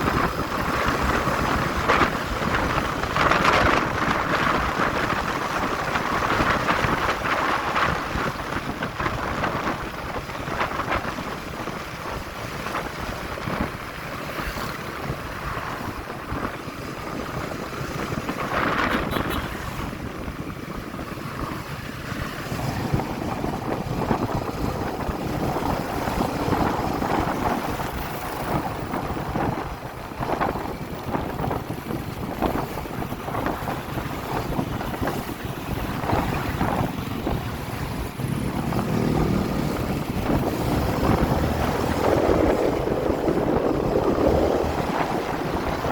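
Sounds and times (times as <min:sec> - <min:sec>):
road noise: 0:00.0 - 0:45.9
wind rushing over microphone: 0:00.0 - 0:45.9
motorcycle engine: 0:34.0 - 0:45.9.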